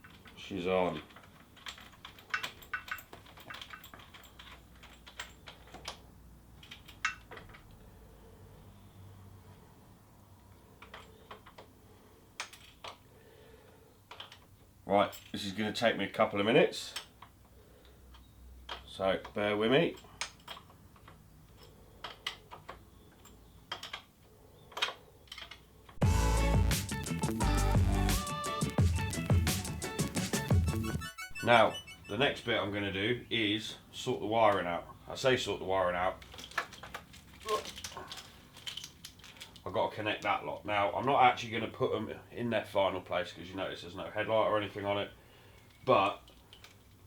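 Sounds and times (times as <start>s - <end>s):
clicks of small parts and tools: 1.0s - 7.8s, 12.4s - 13.0s, 14.1s - 14.5s, 16.9s - 24.1s, 24.7s - 26.0s, 36.2s - 40.3s, 45.6s - 47.0s
hand tools clicking and tapping: 16.9s - 26.0s, 28.2s - 31.1s.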